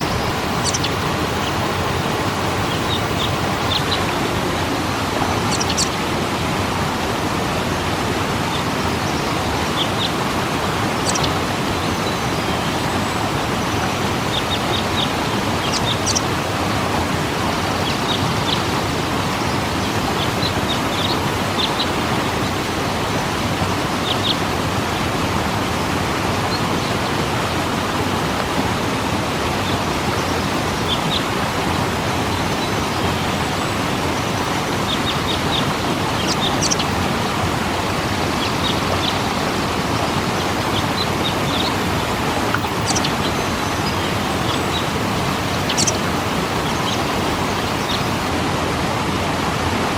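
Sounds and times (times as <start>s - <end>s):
high bird chirps: 0.0s - 4.0s, 5.5s - 6.0s, 11.0s - 13.2s, 13.8s - 16.3s, 29.6s - 48.3s
waterfall rushing: 0.0s - 49.9s.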